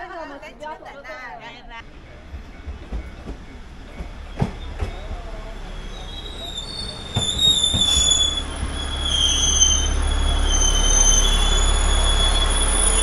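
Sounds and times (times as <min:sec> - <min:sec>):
diesel railcar rumble: 0:01.7 - 0:13.0
wheels squealing: 0:04.2 - 0:13.0.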